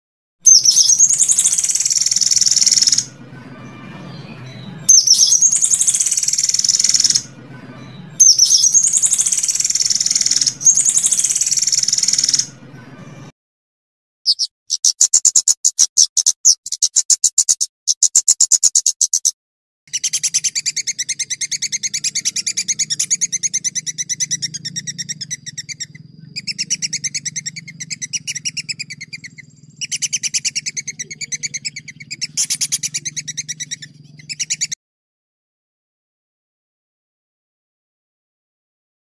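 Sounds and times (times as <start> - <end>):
songbird rattling trills: 0.5 - 3.1, 4.9 - 7.2, 8.2 - 12.5, 19.9 - 34.8
faint low hum: 20.3 - 34.5.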